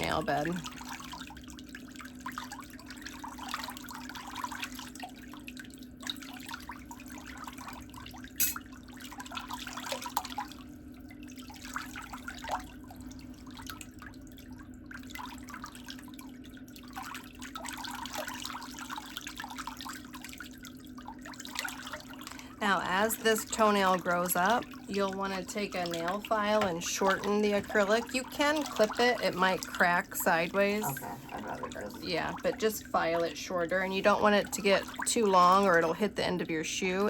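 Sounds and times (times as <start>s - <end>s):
water trickling and splashing: 0.0s - 37.0s
steady low hum: 21.2s - 37.0s.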